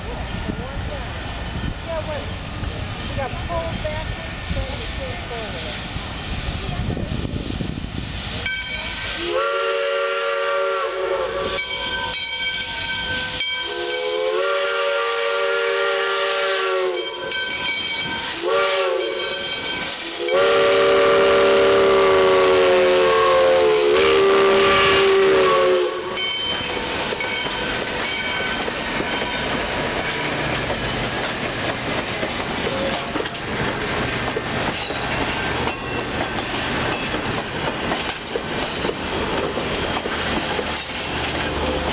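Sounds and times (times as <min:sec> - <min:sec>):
passing train rumble: 0:00.0 - 0:41.9
steam hissing: 0:00.0 - 0:41.9
steam chime whistle blasts: 0:08.4 - 0:30.4.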